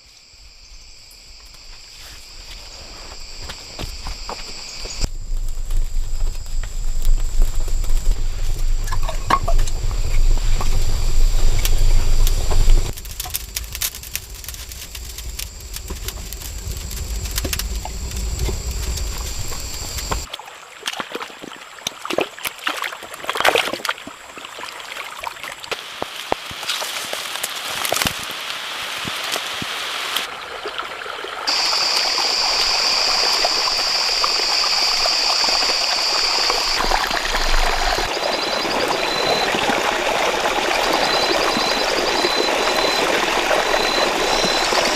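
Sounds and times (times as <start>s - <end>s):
running water: 28.4s - 44.9s.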